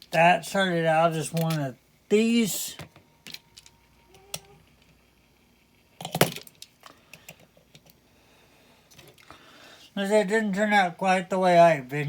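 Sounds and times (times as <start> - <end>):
toy cars clicking and clattering: 1.3 - 1.6, 6.0 - 8.0.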